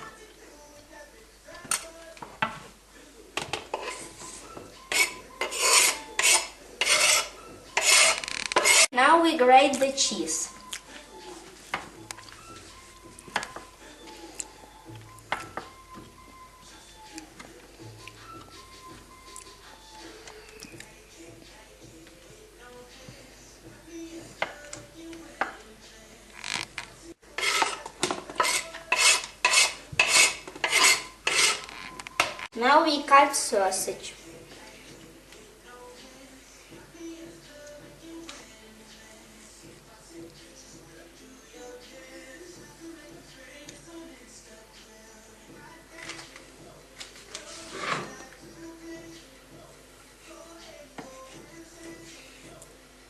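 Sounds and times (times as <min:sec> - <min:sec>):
food scraping on grater: 0:04.9 - 0:08.9, 0:27.3 - 0:32.4.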